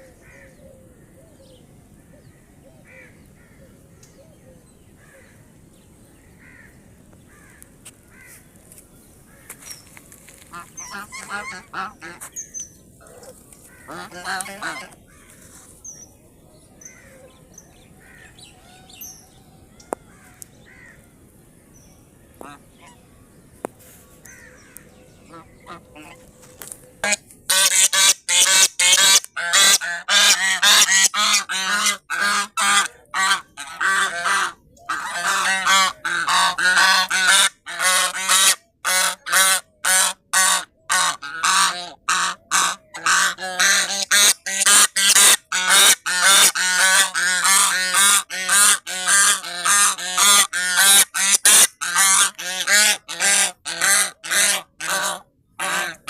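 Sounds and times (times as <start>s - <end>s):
geese honking: 10.4s - 12.3s, 13.0s - 15.4s, 22.4s - 23.0s, 25.3s - 56.0s.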